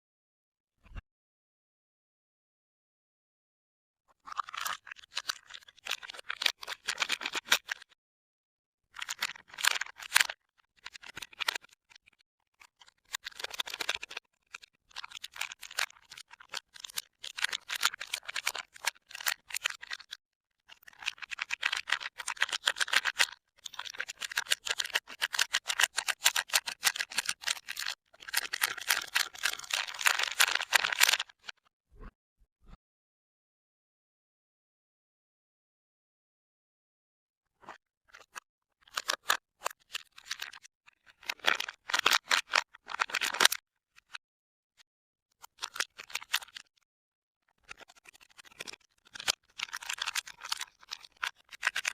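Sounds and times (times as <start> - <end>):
soap wrappers crinkling: 4.3 - 7.8, 9.0 - 12.1, 12.8 - 31.6, 38.1 - 44.2, 45.6 - 46.7, 47.6 - 51.9.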